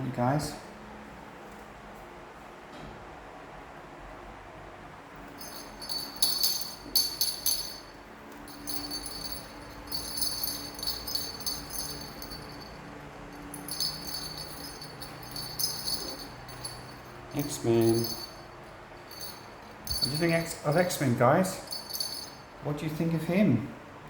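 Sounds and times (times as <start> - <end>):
small jingle bell shaken: 5.3 - 22.5.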